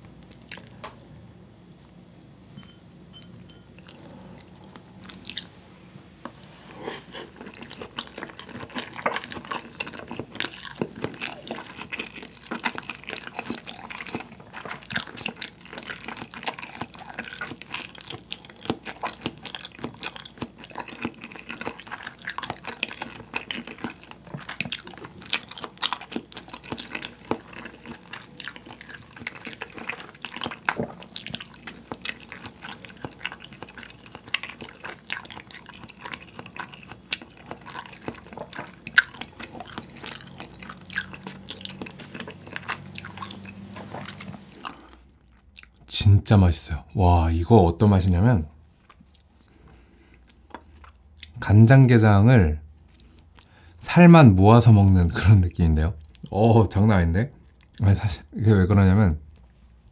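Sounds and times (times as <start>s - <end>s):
wet chewing: 0.0s - 0.8s, 2.6s - 5.6s, 6.3s - 45.9s, 48.6s - 51.4s, 56.0s - 56.4s, 57.3s - 57.8s.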